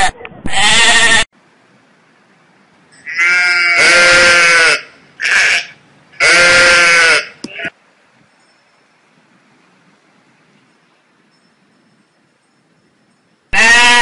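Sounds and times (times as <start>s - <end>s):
sheep bleating: 0.5s - 1.2s, 3.1s - 7.7s, 13.6s - 14.0s.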